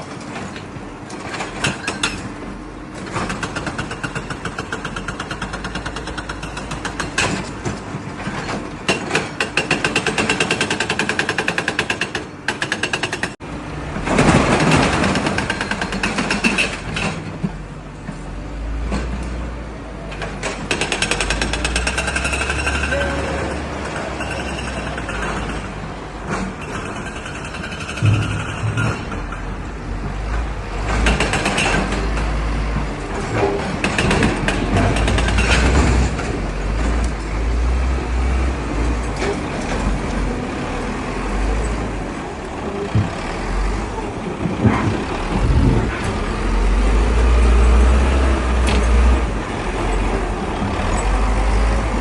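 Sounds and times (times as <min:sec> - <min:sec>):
machinery clanking and rattling: 0:00.0 - 0:52.0
deep engine rumble: 0:38.0 - 0:52.0.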